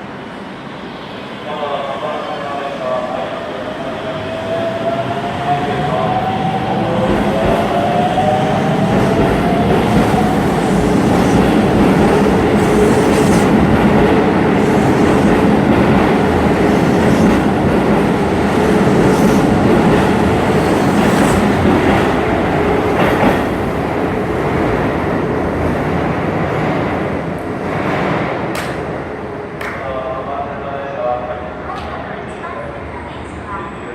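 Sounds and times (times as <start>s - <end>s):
train rolling rumble: 3.6s - 29.1s.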